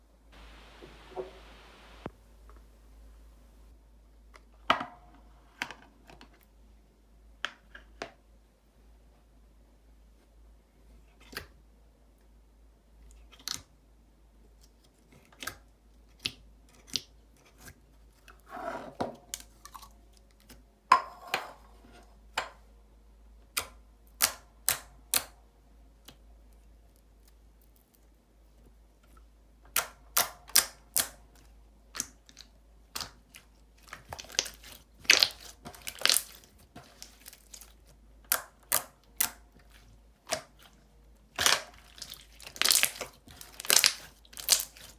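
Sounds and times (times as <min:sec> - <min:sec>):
slime being kneaded: 0:32.9 - 0:44.9
air bubbles popping in slime: 0:41.4 - 0:43.0, 0:43.6 - 0:44.8.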